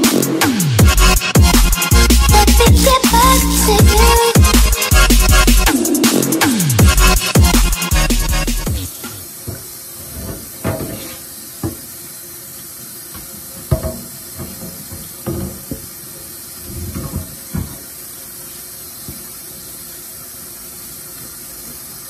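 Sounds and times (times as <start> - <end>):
metal grates clunking: 9.0 - 11.8, 13.6 - 15.9, 16.7 - 17.8
tap water running into sink: 10.3 - 12.0, 13.0 - 18.0.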